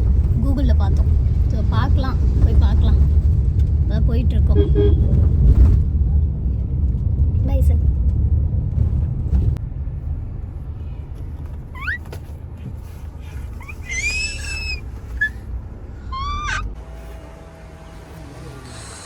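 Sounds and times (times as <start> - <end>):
low vehicle rumble: 0.0 - 19.0
high-pitched animal calls: 11.8 - 12.1, 13.6 - 15.4, 16.1 - 16.7.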